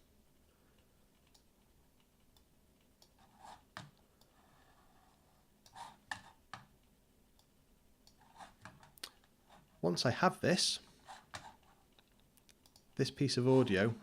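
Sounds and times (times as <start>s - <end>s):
computer mouse clicks: 11.3s - 12.9s.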